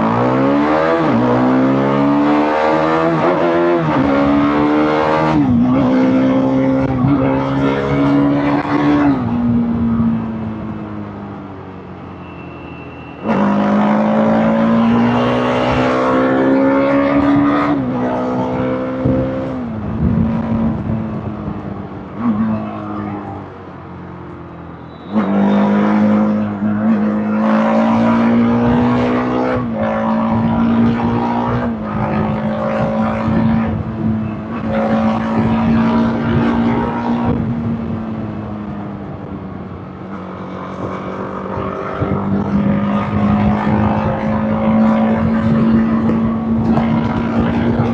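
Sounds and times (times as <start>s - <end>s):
motorcycle engine shifting gears: 13.2s - 47.9s.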